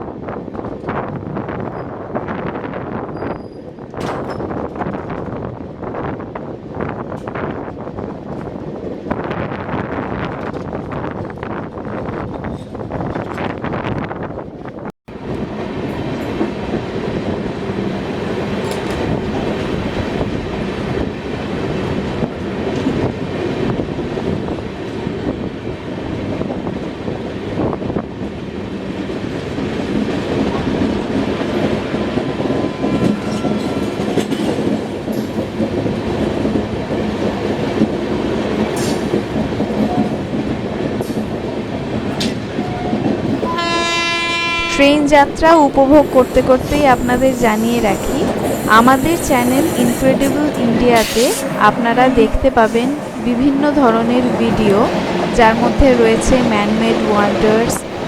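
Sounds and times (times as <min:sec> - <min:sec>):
train wheels clattering on rails: 0:15.6 - 0:43.4.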